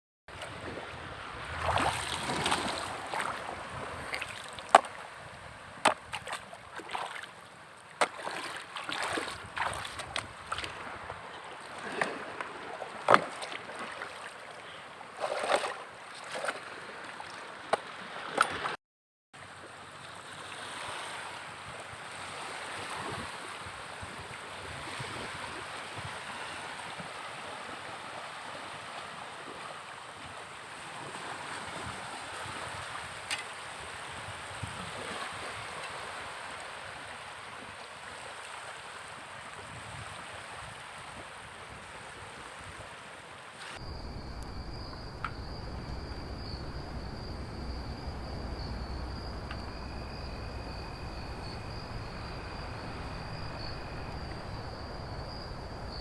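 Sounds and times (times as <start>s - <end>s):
wind on microphone: 0.3s - 6.8s, 8.9s - 12.6s, 20.9s - 37.8s, 39.1s - 56.0s
sea waves washing on shore: 0.3s - 18.8s, 19.8s - 56.0s
insects chirring: 43.6s - 56.0s
low rumble: 43.8s - 56.0s.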